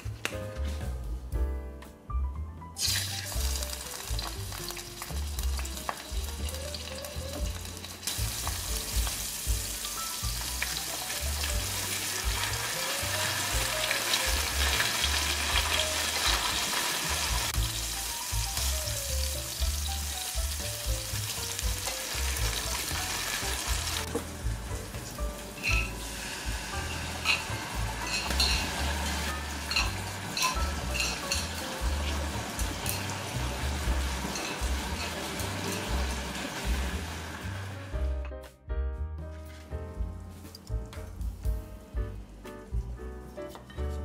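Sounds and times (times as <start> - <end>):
mushrooms sizzling in oil: 2.8 - 38.0.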